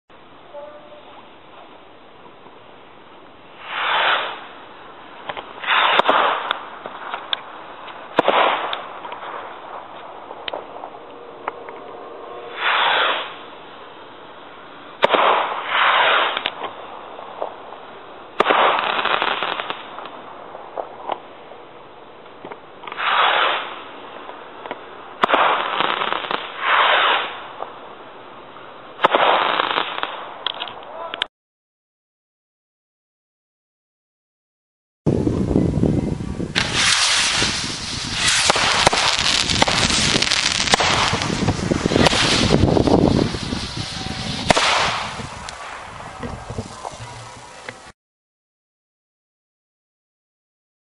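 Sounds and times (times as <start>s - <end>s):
firework rockets whooshing: 3.5s - 11.1s, 12.4s - 17.7s, 18.3s - 21.1s, 22.8s - 27.7s, 29.0s - 30.6s, 36.4s - 47.9s
firework cracks and pops: 3.6s - 11.0s, 15.0s - 17.7s, 18.4s - 21.4s, 22.2s - 27.8s, 29.0s - 30.9s, 36.5s - 47.9s.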